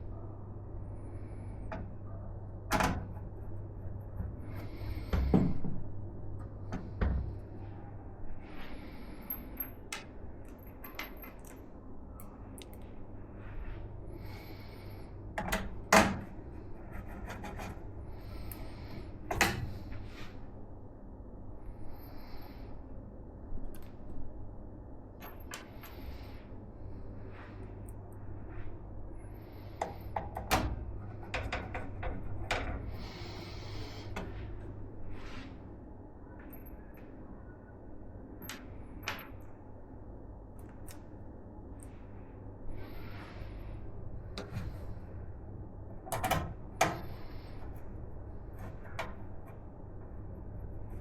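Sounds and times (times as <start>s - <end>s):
hands rubbing computer parts: 16.8s - 17.8s.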